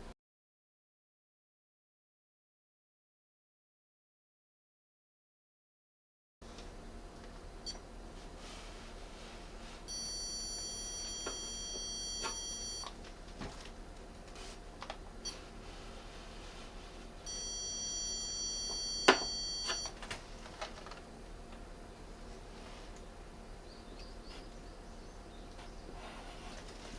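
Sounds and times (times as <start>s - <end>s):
stud finder high-pitched beeps: 9.9s - 12.9s, 17.3s - 19.9s.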